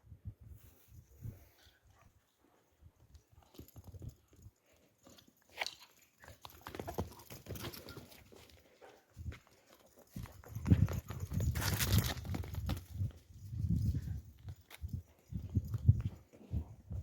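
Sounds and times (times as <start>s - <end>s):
animal moving about: 3.4s - 16.6s.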